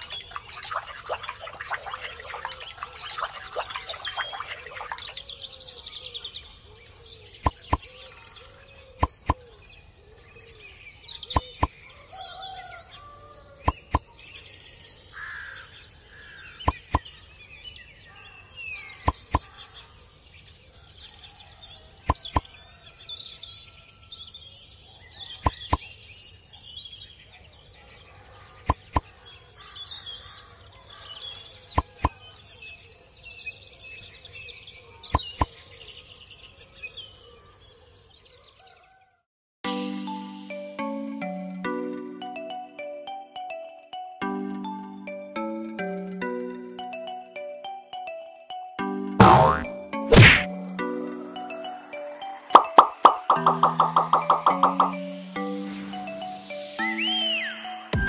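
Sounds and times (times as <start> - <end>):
small birds chirping: 0.0 - 23.9, 41.4 - 58.0.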